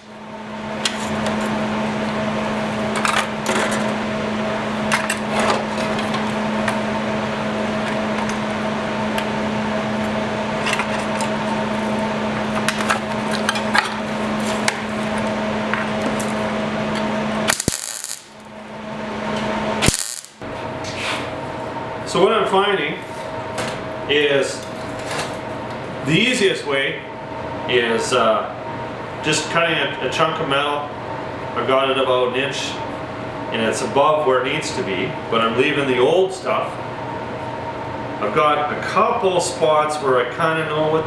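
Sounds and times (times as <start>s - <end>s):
metalworking power tool humming: 0.8s - 20.6s
short sharp noise bursts: 17.5s - 18.4s, 19.8s - 20.4s.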